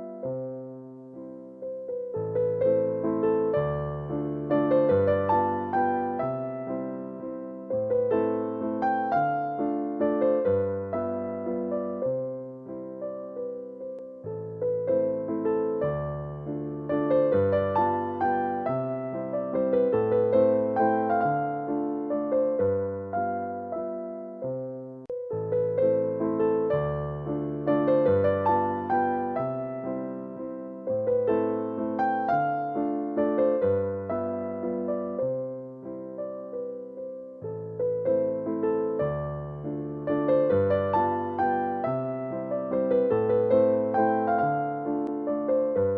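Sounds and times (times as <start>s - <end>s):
solo electric piano music: 0.0s - 45.9s.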